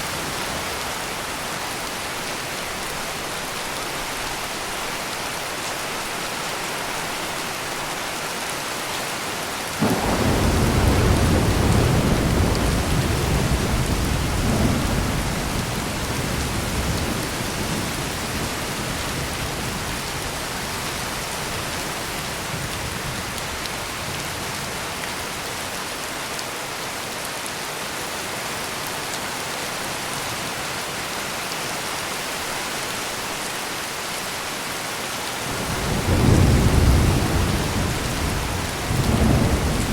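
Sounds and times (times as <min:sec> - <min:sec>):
heavy rain falling: 0:00.0 - 0:39.9
thunder clap and rumble: 0:09.8 - 0:19.9, 0:35.5 - 0:39.9.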